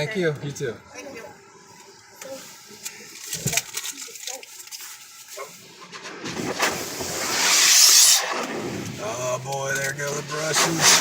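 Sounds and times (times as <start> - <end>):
spray hissing and scrubbing: 6.4 - 9.0, 10.1 - 11.0.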